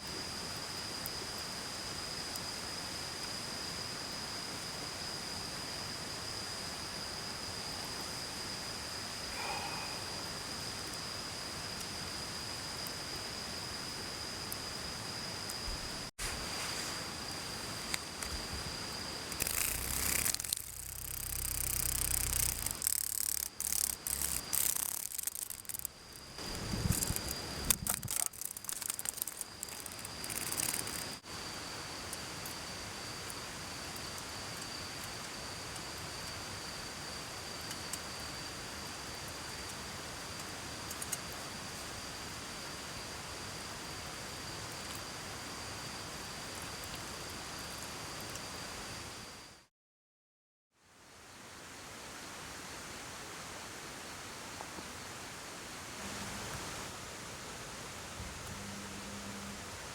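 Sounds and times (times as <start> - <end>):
high-pitched insect trill: 0.1 - 49.7
mountain stream hiss: 8.4 - 49.3, 50.8 - 59.9
cicada buzzing harshly: 17.0 - 40.0.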